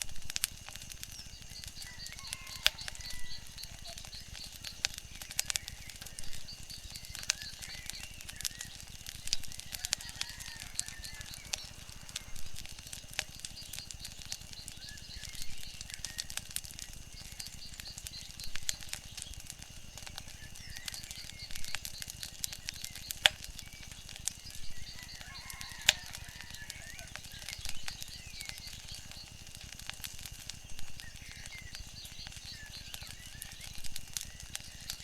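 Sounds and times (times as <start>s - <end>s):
sharp pops from fire: 0.0s - 35.0s
wood fire crackling: 0.0s - 35.0s.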